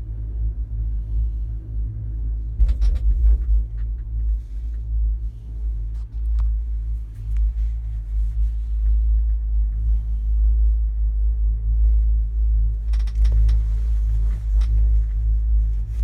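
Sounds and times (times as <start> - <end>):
wind buffeting microphone: 1.7 - 7.2.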